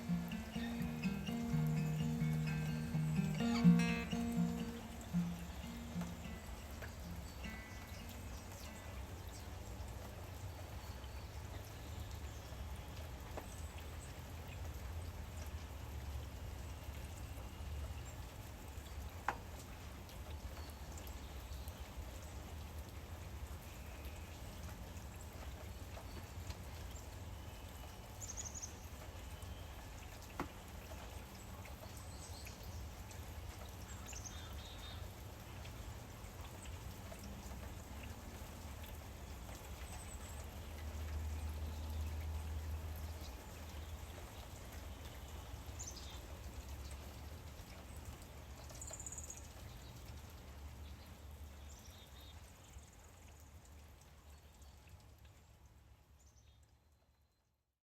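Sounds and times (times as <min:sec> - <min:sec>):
rain patter: 0:00.0 - 0:57.2.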